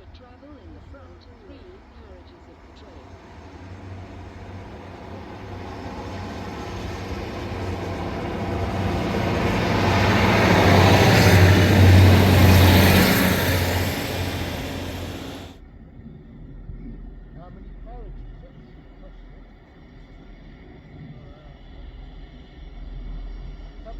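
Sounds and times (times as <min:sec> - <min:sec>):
diesel train approaching: 0:00.2 - 0:15.6.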